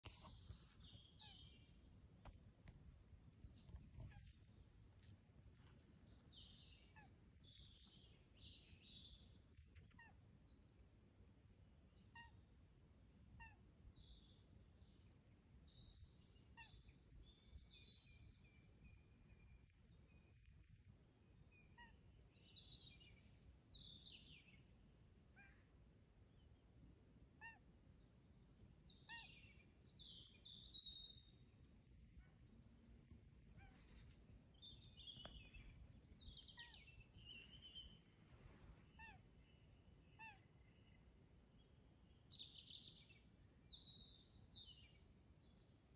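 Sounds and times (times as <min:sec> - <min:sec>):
birds chirping and warbling: 0:00.0 - 0:01.8, 0:03.3 - 0:05.1, 0:06.0 - 0:10.8, 0:13.4 - 0:24.7, 0:28.3 - 0:45.7
repeated short bird call: 0:33.5 - 0:38.2, 0:38.8 - 0:41.0.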